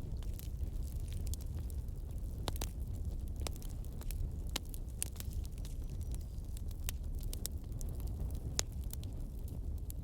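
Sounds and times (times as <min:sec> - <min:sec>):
burning logs crackling: 0:00.0 - 0:10.0
low rumble of flames: 0:00.0 - 0:10.0.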